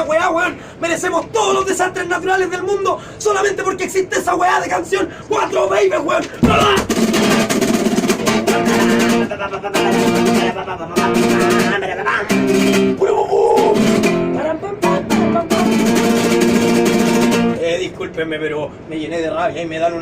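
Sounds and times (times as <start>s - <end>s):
acoustic guitar strumming chords: 6.4s - 17.6s.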